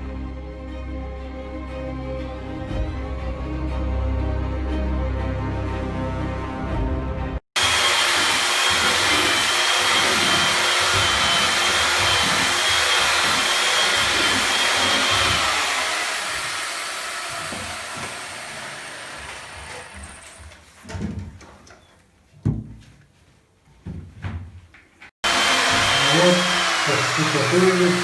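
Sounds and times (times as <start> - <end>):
electric motor running: 7.6 - 20.4, 25.2 - 28.0
high motor whine: 25.2 - 28.0.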